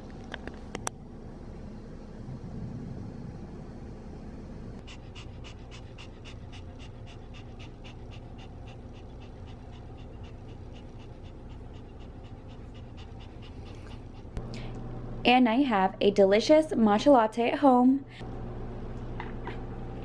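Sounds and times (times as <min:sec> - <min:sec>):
low steady hum: 0:00.0 - 0:20.0
dog panting rapidly: 0:04.8 - 0:14.4.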